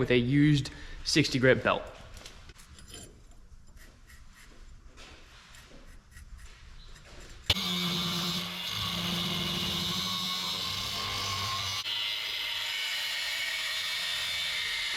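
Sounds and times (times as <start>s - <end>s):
belt sander grinding metal: 7.4s - 14.9s.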